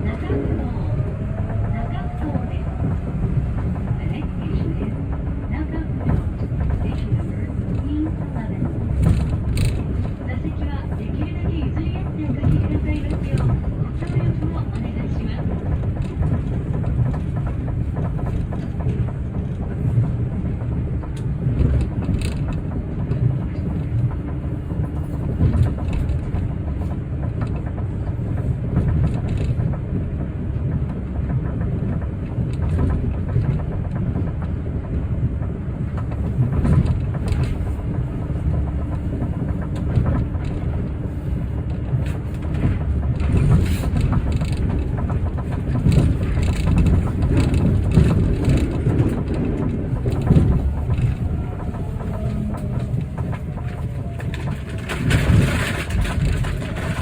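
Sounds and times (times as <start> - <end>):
train cabin low rumble: 0.0 - 57.0.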